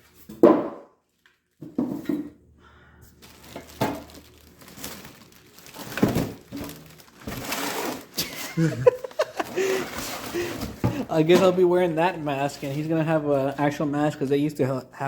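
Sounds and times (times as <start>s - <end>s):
packaging rustling: 3.1s - 11.7s.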